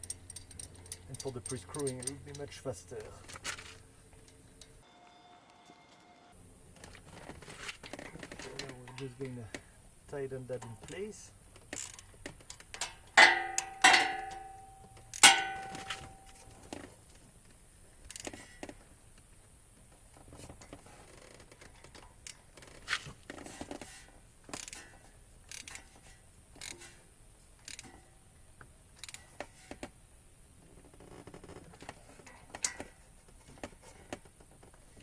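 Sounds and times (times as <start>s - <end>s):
ringing metallic clinks: 13.2s - 16.5s.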